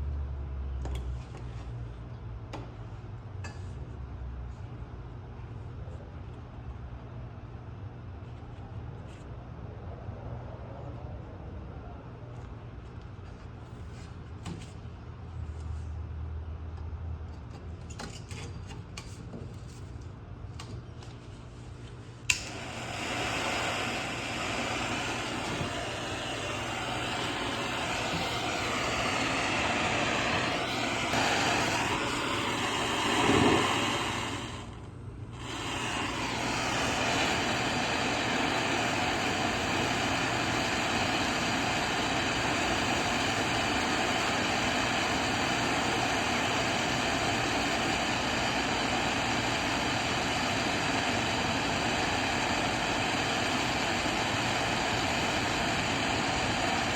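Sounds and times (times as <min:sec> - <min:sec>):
gas torch flame hissing: 0:22.2 - 0:56.9.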